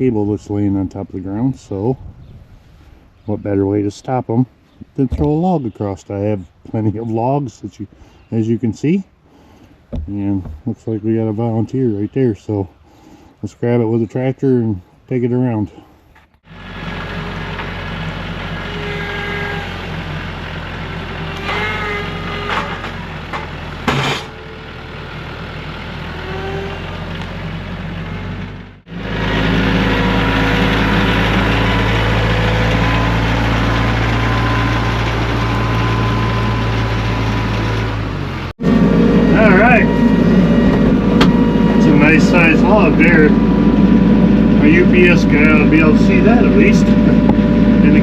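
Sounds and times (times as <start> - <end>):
short knocks: 9.9 - 10.7
tractor engine running: 16.4 - 48.0.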